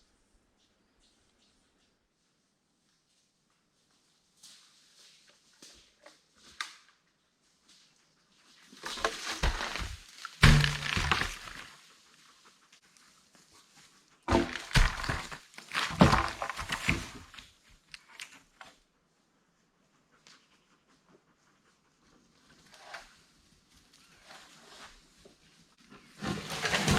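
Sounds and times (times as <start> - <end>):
wood knocking and thunking: 8.9 - 11.6, 14.3 - 17.3.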